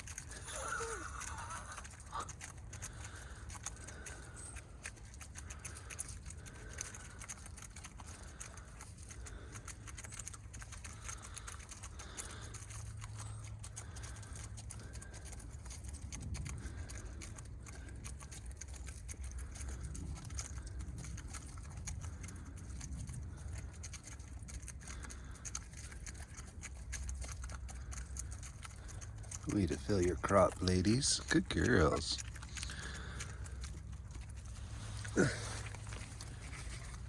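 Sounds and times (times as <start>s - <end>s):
hens pecking and scratching: 0.0s - 37.0s
hens clucking: 28.7s - 37.0s.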